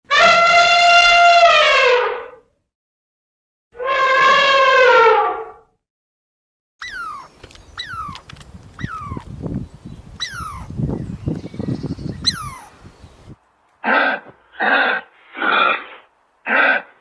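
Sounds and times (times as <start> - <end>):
animal hoarse calls: 6.8 - 9.4, 10.2 - 10.8, 12.3 - 12.7.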